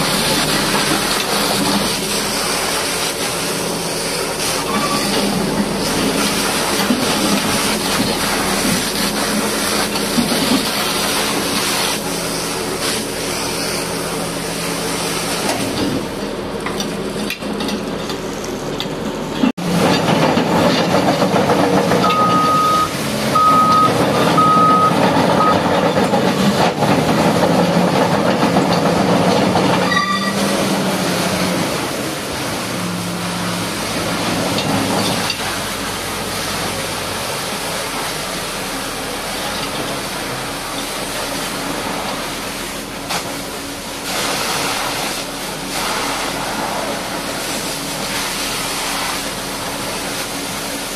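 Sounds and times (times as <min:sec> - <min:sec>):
high-pressure water spray hissing: 0:00.0 - 0:16.3, 0:28.8 - 0:50.9
diesel engine running: 0:00.0 - 0:50.9
short high beeps: 0:22.0 - 0:25.6.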